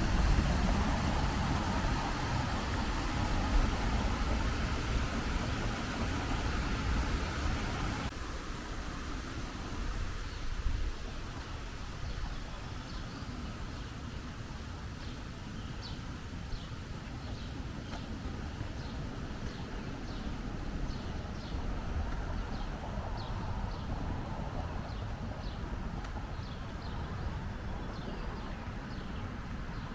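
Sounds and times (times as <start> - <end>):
low background rumble: 0.0 - 8.1.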